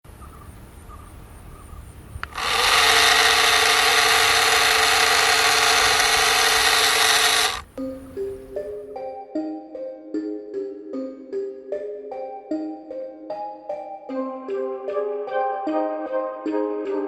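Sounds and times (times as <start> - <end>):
small power tool running: 2.2 - 7.8.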